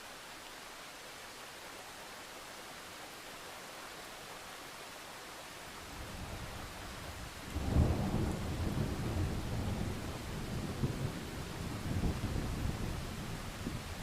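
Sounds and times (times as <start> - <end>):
steady rain hissing: 0.0 - 14.0
low thunder rumble: 7.5 - 13.9.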